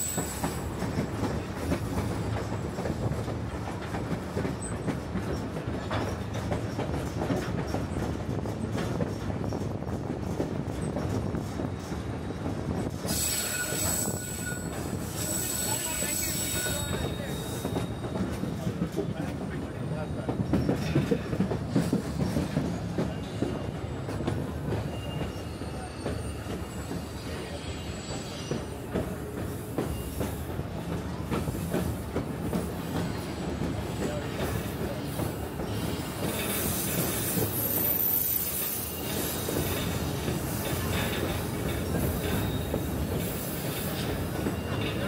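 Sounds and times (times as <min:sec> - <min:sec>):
high wheel squeal: 0:00.0 - 0:00.8, 0:13.0 - 0:18.3, 0:24.5 - 0:30.5, 0:33.0 - 0:45.0
train wheels rumbling on rails: 0:00.0 - 0:45.0.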